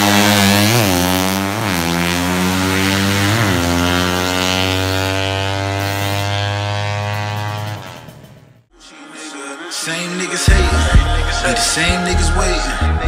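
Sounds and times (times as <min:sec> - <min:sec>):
motorcycle engine idling and revving: 0:00.0 - 0:08.7.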